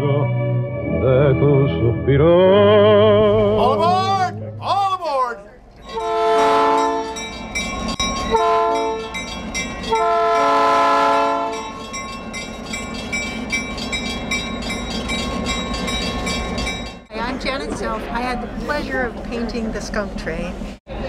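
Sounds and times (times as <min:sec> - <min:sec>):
train rumbling: 0:01.6 - 0:21.0
locomotive air horn blasts: 0:05.8 - 0:07.3, 0:08.3 - 0:09.2, 0:09.9 - 0:11.8
wheels clicking over rail joints: 0:11.5 - 0:17.9.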